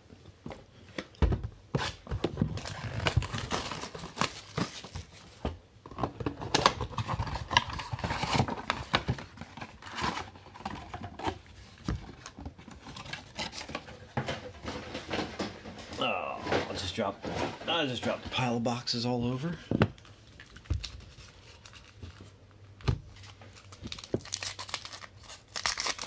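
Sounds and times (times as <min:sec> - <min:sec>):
cardboard tearing: 0:01.8 - 0:05.2, 0:06.5 - 0:11.4, 0:23.2 - 0:26.0
wrappers crinkling: 0:20.0 - 0:22.4, 0:23.1 - 0:26.0.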